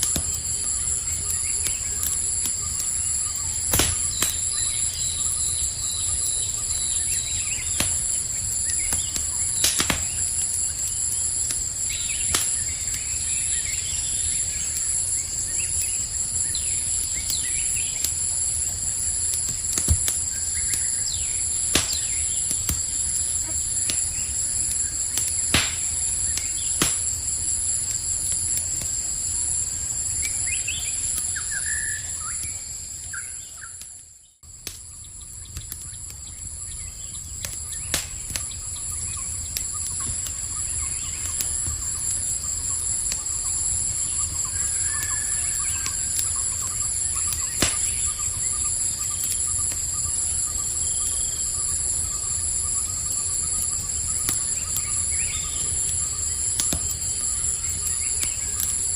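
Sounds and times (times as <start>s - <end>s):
campfire crackling and popping: 0.0s - 58.9s
night insects chorus: 0.0s - 58.9s
bird chirps: 30.2s - 33.8s.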